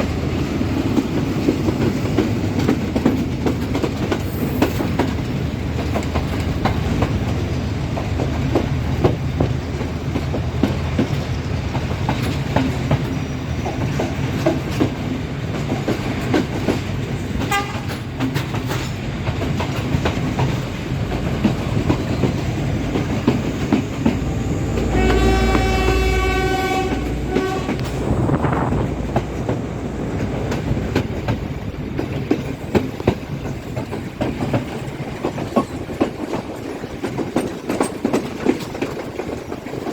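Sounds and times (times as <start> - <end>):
train wheels clickety-clack: 0.0 - 39.9
locomotive horn blast: 17.4 - 18.0, 24.7 - 28.7.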